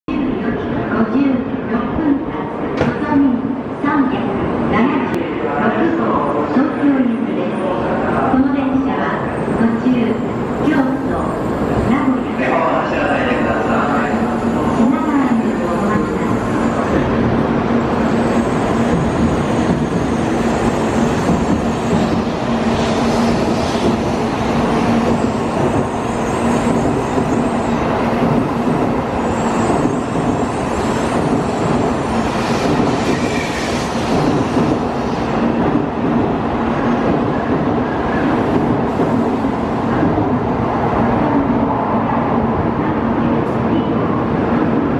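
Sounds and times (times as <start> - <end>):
train wheels rushing on rails: 12.8 - 41.4.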